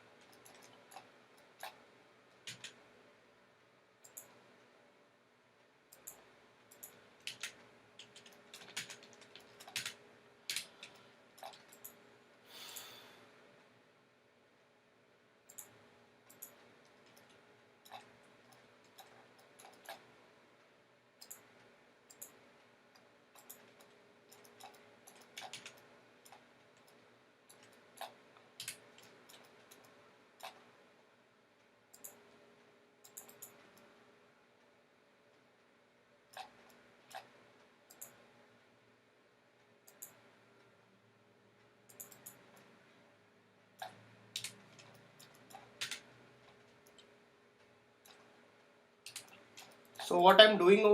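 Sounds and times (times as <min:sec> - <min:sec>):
computer mouse clicking: 0:00.2 - 0:02.8, 0:04.0 - 0:04.4, 0:05.9 - 0:12.0, 0:15.5 - 0:20.1, 0:21.2 - 0:30.7, 0:31.9 - 0:32.2, 0:33.0 - 0:33.9, 0:36.3 - 0:38.3, 0:39.8 - 0:40.2, 0:41.9 - 0:42.7, 0:43.8 - 0:47.1, 0:48.0 - 0:48.4, 0:49.0 - 0:50.1.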